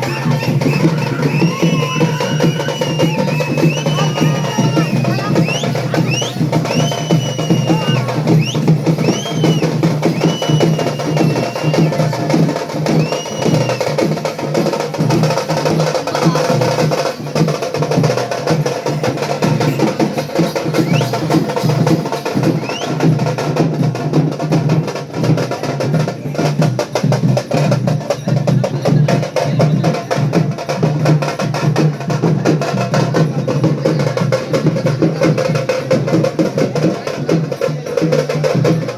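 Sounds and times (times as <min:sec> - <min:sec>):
frame drums drumming: 0:00.0 - 0:38.9
shrill whistle-like glides: 0:00.1 - 0:12.1, 0:12.9 - 0:13.9.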